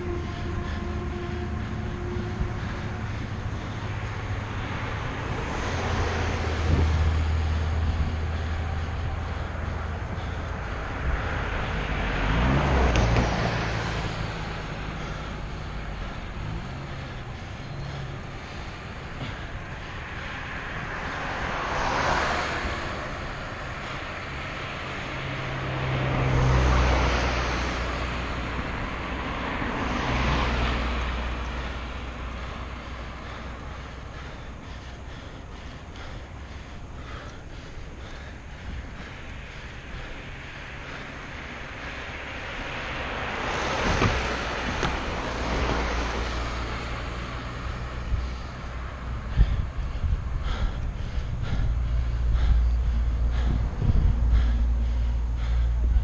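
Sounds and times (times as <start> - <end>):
vehicles passing: 0.0 - 56.0
wind rushing: 49.0 - 54.7.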